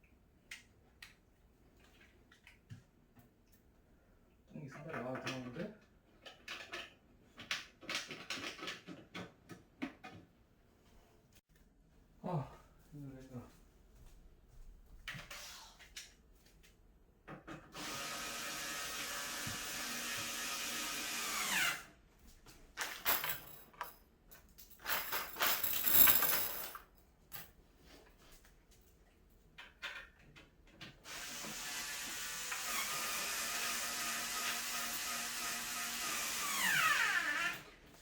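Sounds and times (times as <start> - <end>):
electric drill-driver running: 17.8 - 21.9, 31.1 - 37.7.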